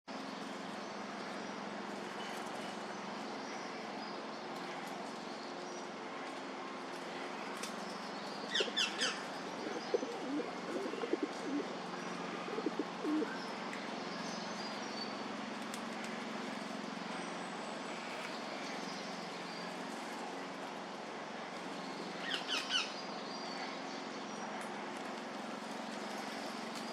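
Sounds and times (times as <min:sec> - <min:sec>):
low background hum: 0:00.1 - 0:26.9
birds calling: 0:08.4 - 0:13.6.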